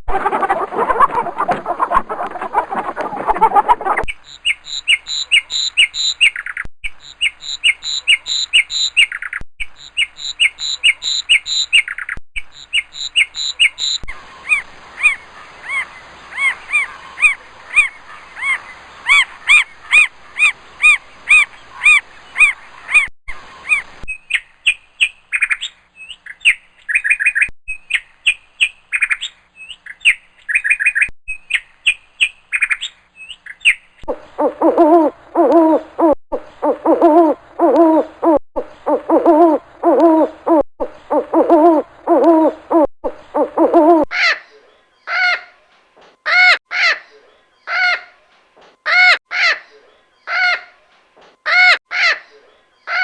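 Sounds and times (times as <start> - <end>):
bird chirping: 0.1 - 53.0
background hiss: 12.6 - 24.0.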